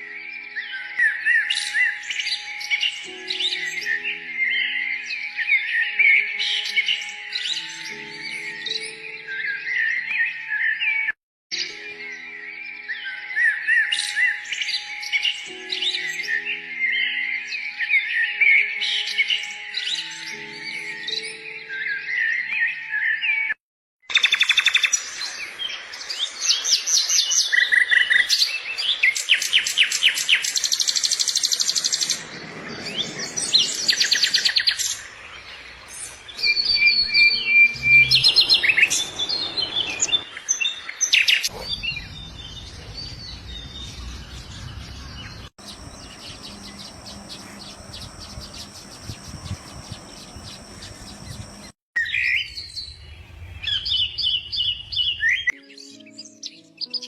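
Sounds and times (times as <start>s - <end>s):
birds chirping and whistling: 24.1s - 57.0s
bird high trill: 36.2s - 40.4s, 45.6s - 51.7s.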